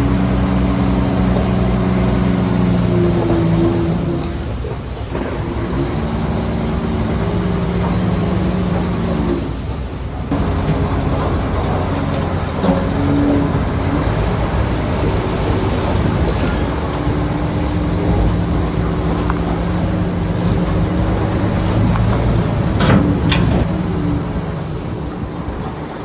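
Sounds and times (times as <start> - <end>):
heavy diesel machinery running: 0.0 - 26.0
metallic clatter: 19.2 - 24.6.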